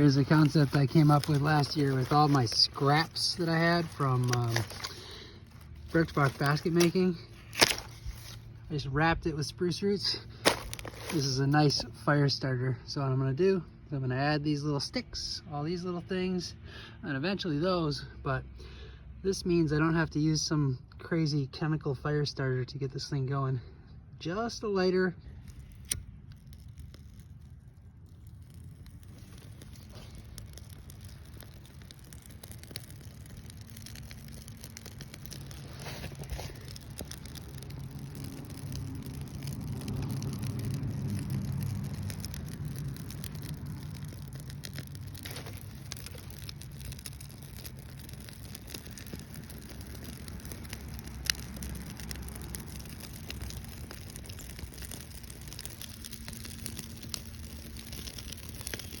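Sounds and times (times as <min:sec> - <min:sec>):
flame rumbling: 0:00.0 - 0:12.4, 0:24.9 - 0:59.0
fire crackles: 0:00.0 - 0:13.9, 0:23.0 - 0:59.0.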